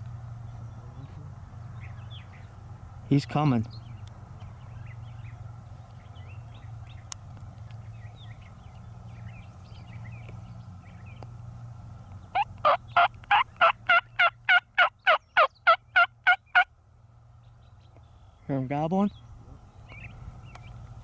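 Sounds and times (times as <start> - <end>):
turkey calls: 12.3 - 16.7
faint small birds chirping: 17.4 - 21.0.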